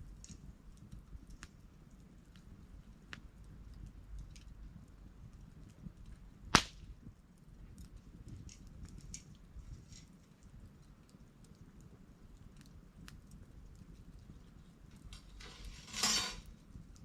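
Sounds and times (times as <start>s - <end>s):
campfire crackling: 0.0s - 17.0s
sharp loud pop of fire: 6.5s - 6.9s.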